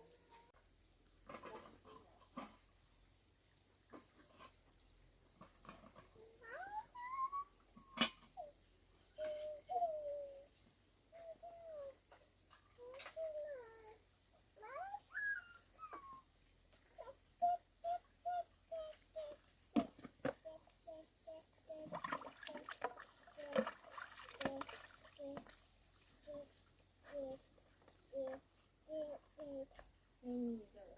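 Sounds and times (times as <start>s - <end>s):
crickets chirping: 0.0s - 30.9s
animal calls: 14.6s - 16.3s.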